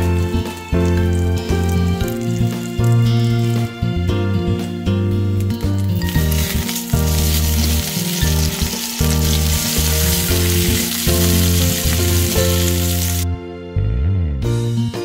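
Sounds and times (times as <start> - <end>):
patties sizzling in frying pan: 0.0 - 3.7, 5.9 - 13.2
background music: 0.0 - 15.0.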